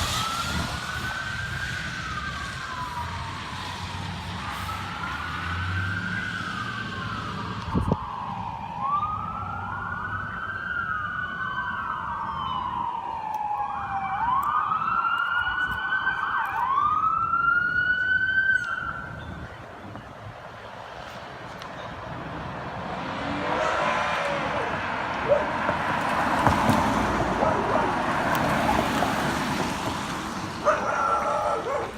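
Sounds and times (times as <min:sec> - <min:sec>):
emergency sirens wailing: 0:00.0 - 0:31.9.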